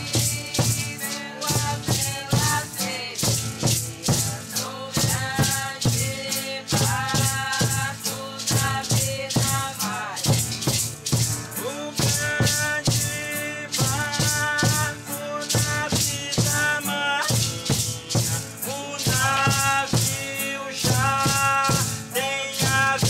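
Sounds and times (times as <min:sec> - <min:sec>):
voices singing: 0:00.0 - 0:10.5, 0:11.6 - 0:23.0
hand rattles shaking: 0:00.0 - 0:23.0.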